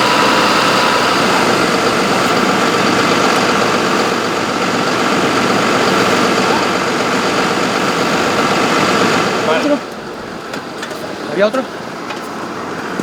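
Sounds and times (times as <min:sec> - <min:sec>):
engine running loudly: 0:00.0 - 0:09.8.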